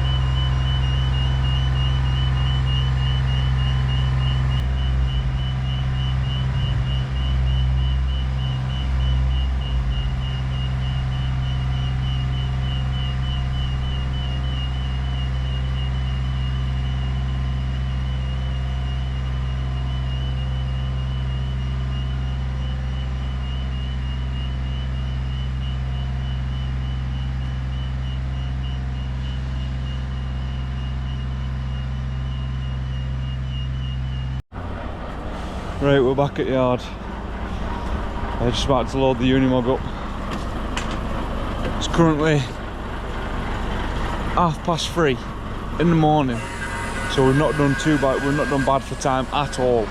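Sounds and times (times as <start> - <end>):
high electronic beep: 0.0 - 34.4, 45.8 - 49.9
diesel engine from inside cab: 0.0 - 49.9.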